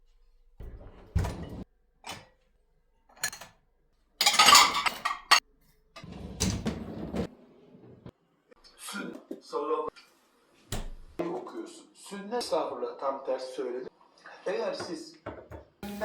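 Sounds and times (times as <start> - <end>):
objects clattering: 4.2 - 5.4.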